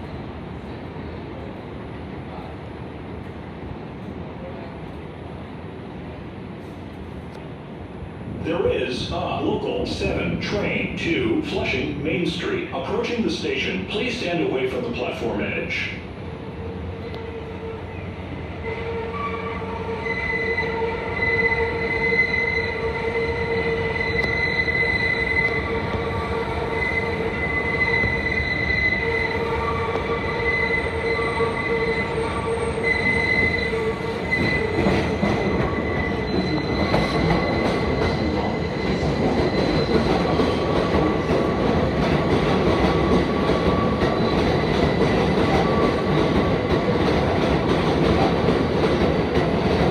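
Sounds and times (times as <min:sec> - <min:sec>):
subway train rumbling: 0:00.0 - 0:49.9
train wheels squealing: 0:17.8 - 0:40.7, 0:43.4 - 0:46.0.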